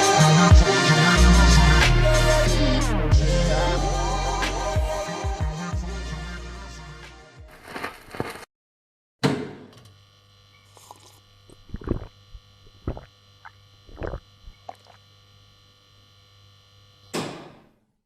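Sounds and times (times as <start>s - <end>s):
sharp thump: 17.2s - 17.7s.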